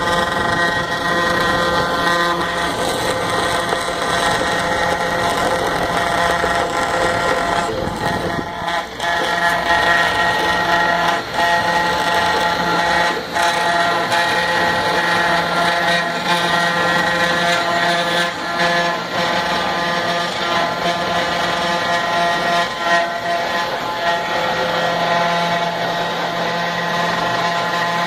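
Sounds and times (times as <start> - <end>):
router spindle cutting wood: 0.0 - 28.0.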